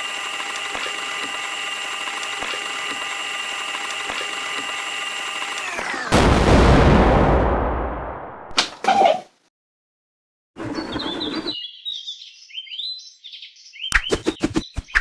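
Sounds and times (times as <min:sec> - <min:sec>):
washing machine motor whine: 0:00.0 - 0:06.2.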